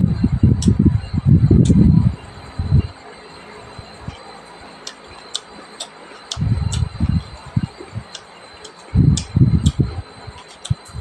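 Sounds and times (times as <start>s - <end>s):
faint high whine: 0.0s - 11.0s
wet mouth clicks and smacks: 4.8s - 6.9s
person chewing: 4.8s - 7.0s, 8.0s - 10.9s.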